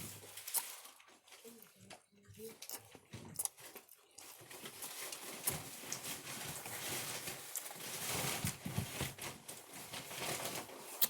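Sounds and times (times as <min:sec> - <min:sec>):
person chewing with wet mouth sounds: 0:00.3 - 0:06.0.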